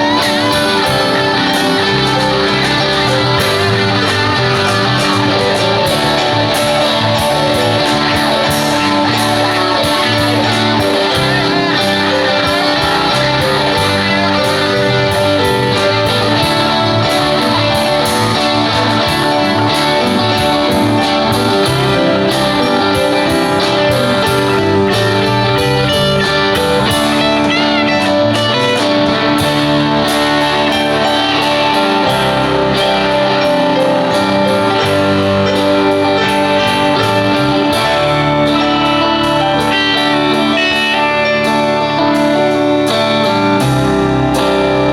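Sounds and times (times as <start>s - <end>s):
lead electric guitar: 0.0s - 44.9s
strummed guitar: 0.0s - 44.9s.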